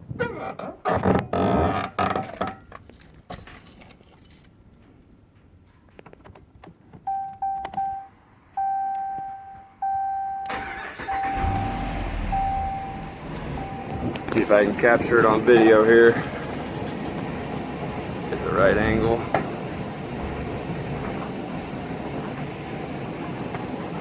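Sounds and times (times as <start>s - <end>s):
keys jangling: 2.2s - 5.1s
vehicle chime beeping: 7.1s - 15.8s
truck engine starting and running: 9.9s - 24.0s.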